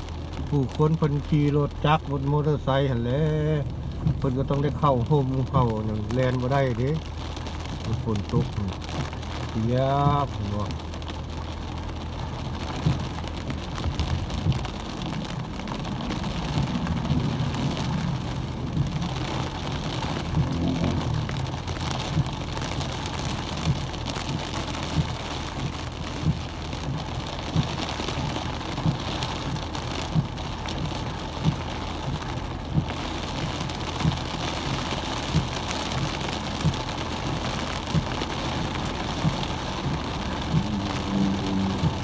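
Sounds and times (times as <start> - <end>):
heavy rain on car: 0.0 - 42.0
windshield wipers knocking: 11.4 - 42.0.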